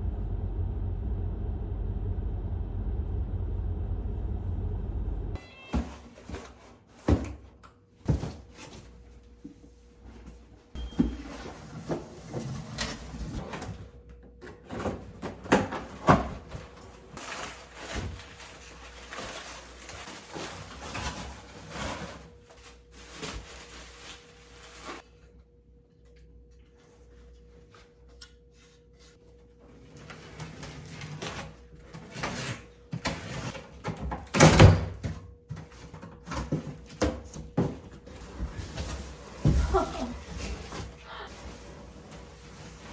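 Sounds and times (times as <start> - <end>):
faint steady hum: 0.0 - 5.4.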